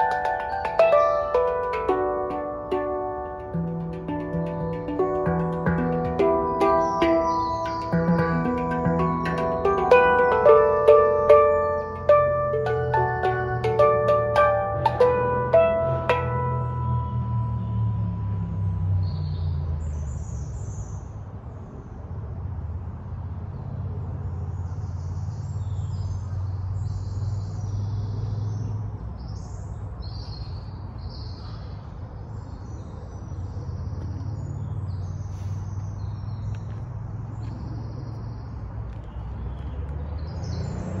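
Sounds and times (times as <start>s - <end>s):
birds chirping and calling: 3.9s - 16.2s.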